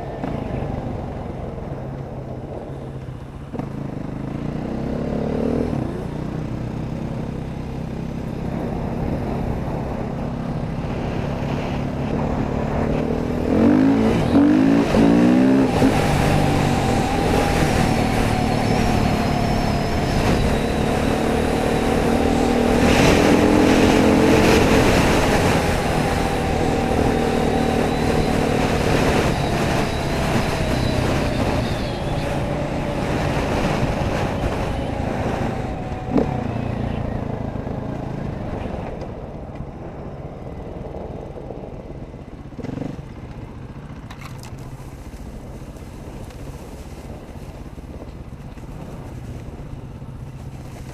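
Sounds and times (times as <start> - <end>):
dirt bike engine revving: 10.9 - 35.4.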